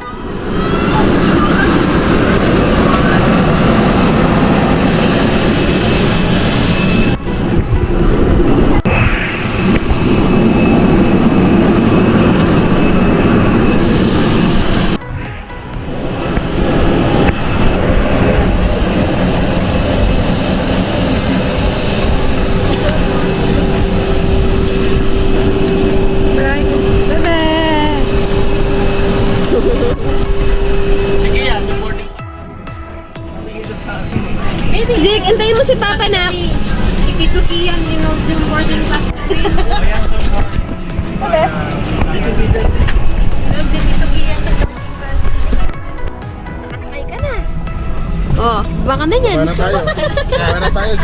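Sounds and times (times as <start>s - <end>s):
high hiss: 0.0s - 32.2s
vehicle engine rumble: 0.0s - 32.3s
steady hum: 0.0s - 51.0s.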